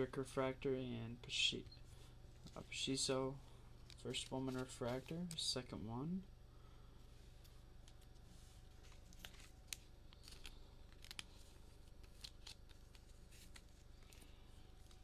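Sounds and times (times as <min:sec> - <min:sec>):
trading cards being flipped by hand: 0:07.4 - 0:15.0.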